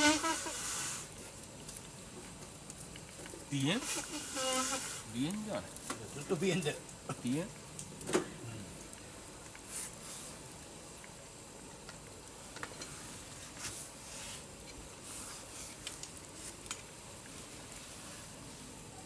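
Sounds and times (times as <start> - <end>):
campfire crackling and popping: 0.0 - 19.0
fire hissing flare-ups: 0.0 - 19.0.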